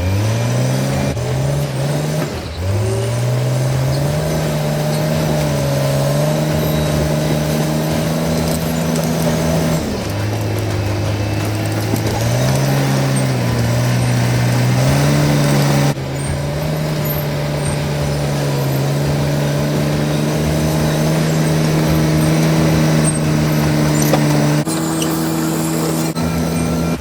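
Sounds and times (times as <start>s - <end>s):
bulldozer diesel engine under load: 0.0s - 27.0s.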